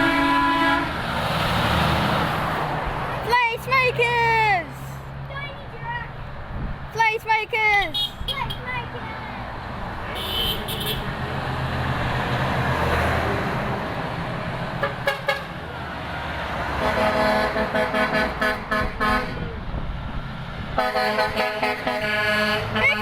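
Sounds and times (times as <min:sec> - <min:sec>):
truck horns: 0:00.0 - 0:02.7, 0:07.7 - 0:08.9, 0:10.0 - 0:11.3, 0:14.7 - 0:15.8, 0:16.6 - 0:19.7, 0:20.7 - 0:23.0
truck engines and tyres rumbling: 0:00.0 - 0:23.0.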